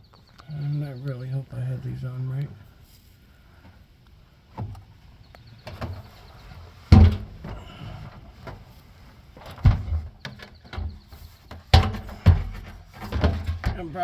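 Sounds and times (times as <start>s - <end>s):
dull thumps and knocks: 6.8s - 8.7s, 9.4s - 14.0s.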